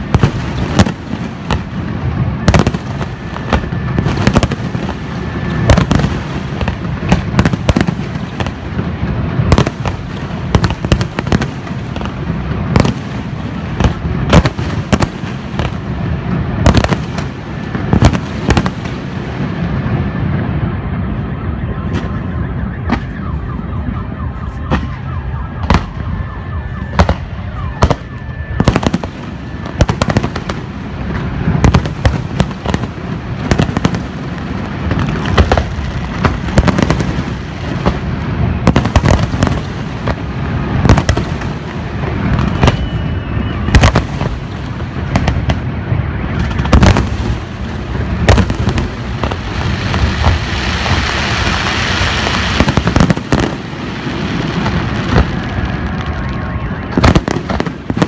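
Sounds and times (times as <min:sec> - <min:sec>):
crackling fireworks hiss: 0:00.0 - 0:58.0
fireworks banging: 0:00.0 - 0:58.0.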